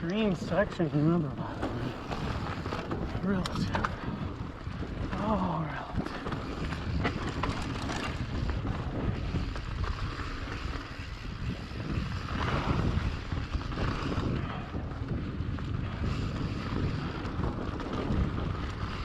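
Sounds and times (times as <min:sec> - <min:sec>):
bike rattles and clicks: 0:00.0 - 0:19.0
wind buffeting microphone: 0:00.1 - 0:19.0
tyre rumble: 0:01.5 - 0:04.1.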